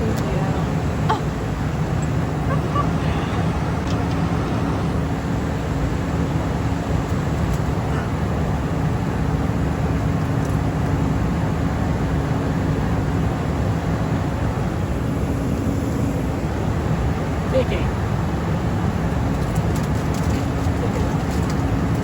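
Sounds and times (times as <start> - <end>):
low hum: 0.0 - 8.3
jet cabin engine rush: 0.0 - 22.0.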